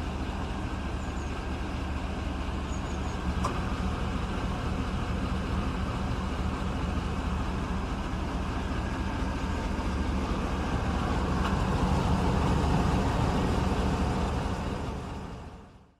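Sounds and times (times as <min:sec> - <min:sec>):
road and tyre noise: 0:00.0 - 0:15.9
truck engine running: 0:00.0 - 0:15.9.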